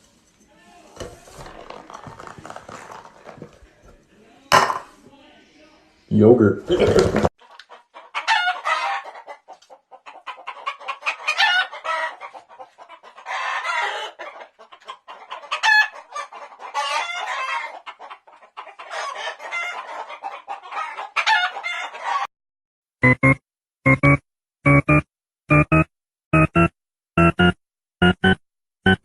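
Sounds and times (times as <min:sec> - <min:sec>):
birds calling and clucking: 0:06.8 - 0:22.3.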